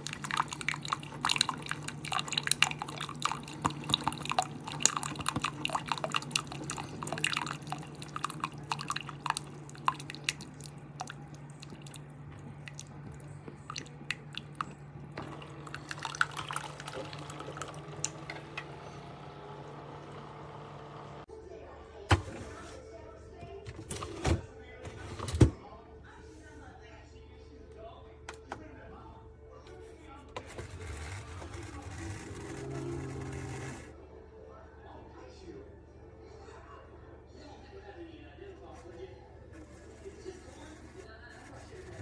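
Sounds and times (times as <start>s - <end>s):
coffee dripping into cup: 0.0s - 18.4s
coffee maker pump humming: 0.0s - 21.3s, 30.3s - 34.0s.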